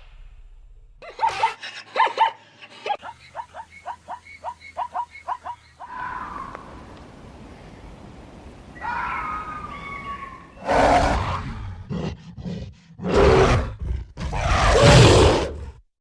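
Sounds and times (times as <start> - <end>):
wavering animal call: 5.8 - 11.4
large animal roaring: 10.0 - 15.8.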